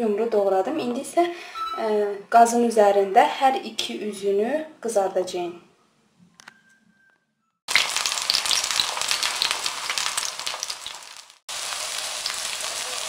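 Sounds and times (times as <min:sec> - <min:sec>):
vegetables sizzling in oil: 0:07.7 - 0:13.0.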